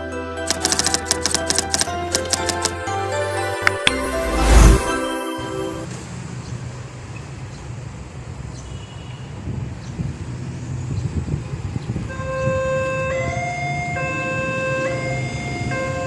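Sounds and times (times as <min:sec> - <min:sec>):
traffic rumble: 0:00.5 - 0:16.0
two-tone crossing alarm: 0:12.1 - 0:16.0.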